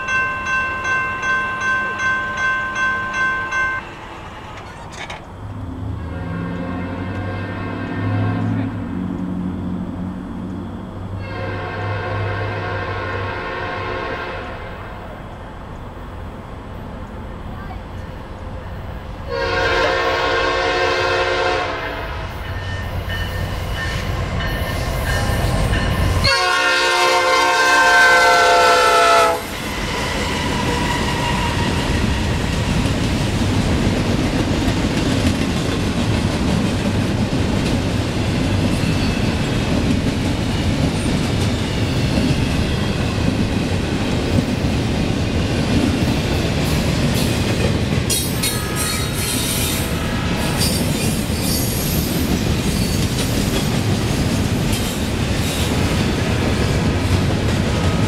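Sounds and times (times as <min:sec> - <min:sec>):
train cars rolling past: 0:00.0 - 0:58.0
locomotive low rumble: 0:01.4 - 0:11.3
train horn blasts: 0:05.9 - 0:08.8, 0:11.2 - 0:15.0, 0:19.3 - 0:22.2, 0:26.2 - 0:31.9.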